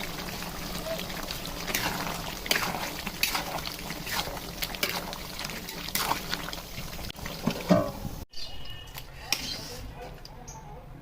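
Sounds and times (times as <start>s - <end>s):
cooking liquid hissing: 0.0s - 8.2s.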